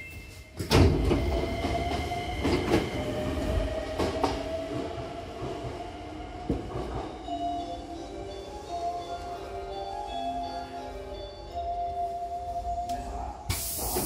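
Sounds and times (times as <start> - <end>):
train humming: 0.0 - 14.0
train door thumping shut: 0.6 - 1.4.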